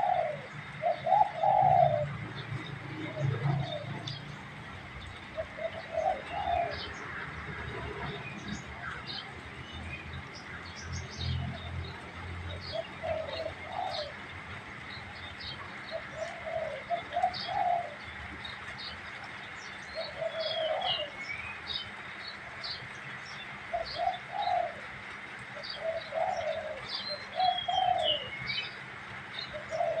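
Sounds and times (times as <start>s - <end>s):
dove cooing: 0.0s - 4.2s, 5.4s - 7.3s, 12.5s - 14.3s, 15.6s - 18.1s, 20.0s - 21.3s, 23.7s - 24.9s, 25.6s - 28.3s, 29.5s - 30.0s
small birds chirping: 25.5s - 30.0s.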